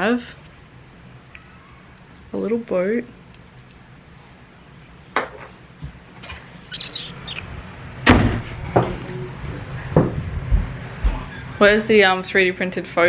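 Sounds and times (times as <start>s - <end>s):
high chirp or squeak: 6.7s - 7.4s.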